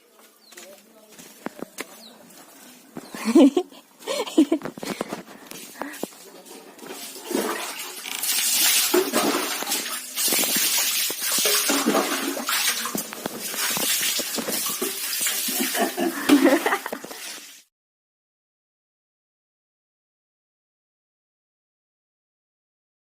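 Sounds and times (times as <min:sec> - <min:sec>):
water splashing and sloshing: 0:04.3 - 0:17.7.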